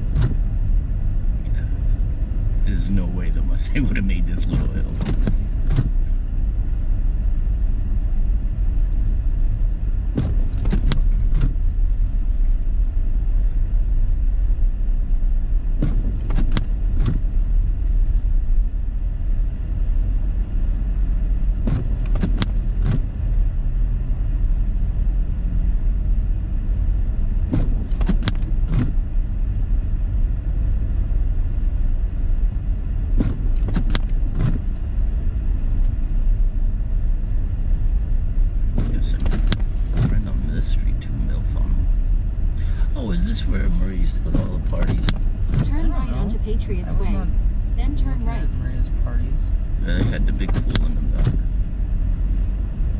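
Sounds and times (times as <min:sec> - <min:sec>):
car driving through snow: 0:15.2 - 0:52.9.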